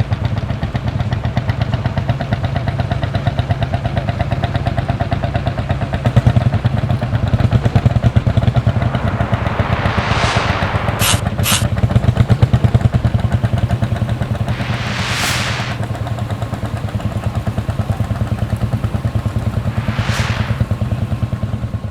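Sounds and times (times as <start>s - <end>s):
hissing whoosh: 7.4s - 12.1s, 14.2s - 16.0s, 19.1s - 21.2s.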